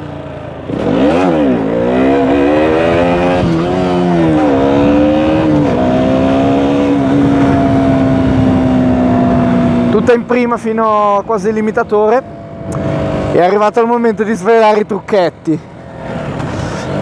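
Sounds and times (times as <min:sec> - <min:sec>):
motorcycle engine accelerating: 0:00.0 - 0:11.2, 0:12.1 - 0:13.6.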